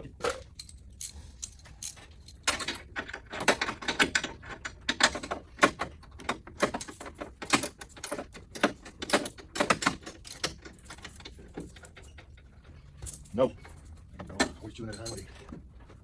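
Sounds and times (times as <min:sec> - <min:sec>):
metal hand tools clinking: 0:00.2 - 0:02.5, 0:14.4 - 0:15.5.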